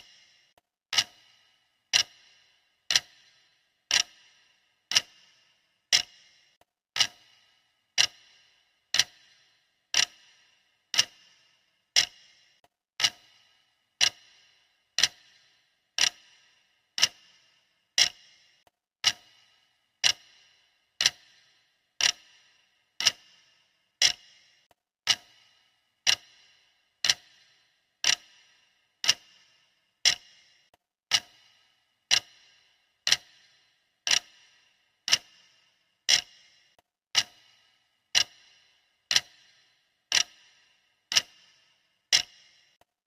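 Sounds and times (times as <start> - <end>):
clock-style timer ticking: 0.0 - 43.0.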